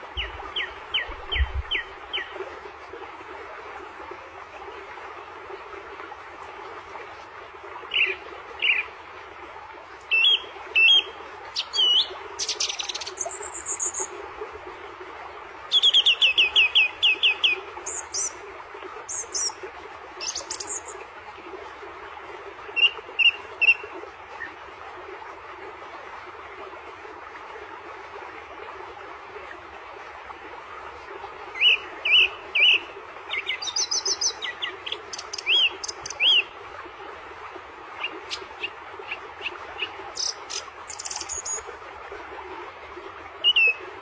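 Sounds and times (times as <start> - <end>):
songbird singing: 0.2 - 2.4, 10.1 - 14.1, 20.2 - 20.9, 31.6 - 36.5, 38.0 - 41.6.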